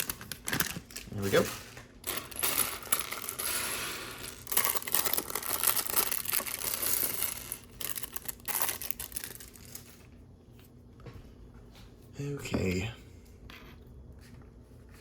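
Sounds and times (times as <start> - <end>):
plastic bag crinkling: 0.0 - 3.6, 4.2 - 10.0.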